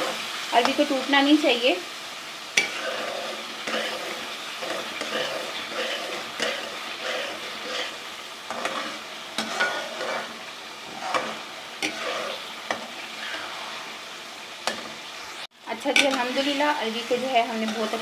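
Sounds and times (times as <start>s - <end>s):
food sizzling in a pan: 0.0s - 18.0s
spoon scraping a pan: 2.6s - 14.0s, 15.9s - 18.0s.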